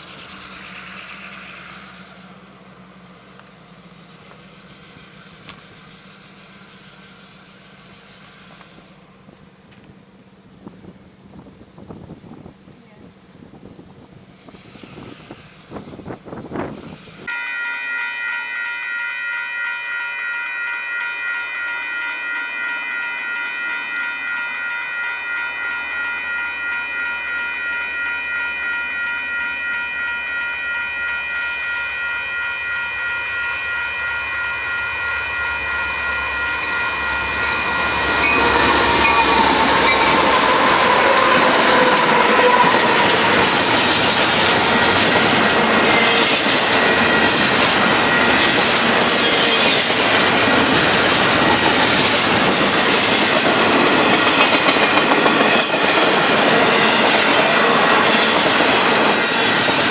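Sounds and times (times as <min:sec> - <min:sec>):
crossing warning bell ringing: 0:00.0 - 0:11.2, 0:16.5 - 0:59.9
train wheels rolling on rails: 0:00.0 - 0:59.9
locomotives rumbling: 0:34.7 - 0:59.9.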